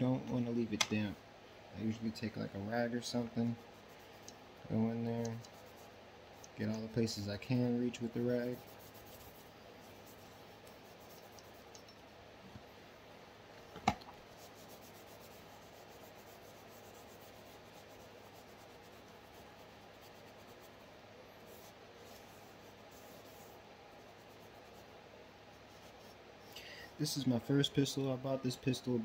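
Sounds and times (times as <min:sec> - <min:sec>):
cloth rubbing on metal: 0:02.8 - 0:06.0, 0:06.6 - 0:11.8, 0:14.3 - 0:26.3.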